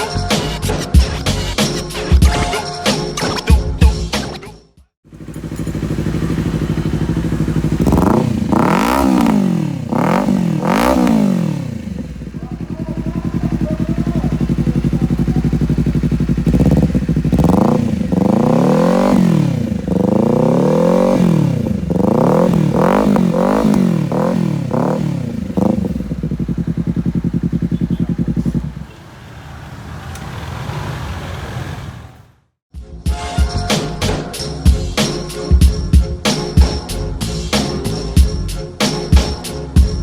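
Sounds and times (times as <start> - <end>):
motorcycle engine idling and revving: 5.0 - 32.6.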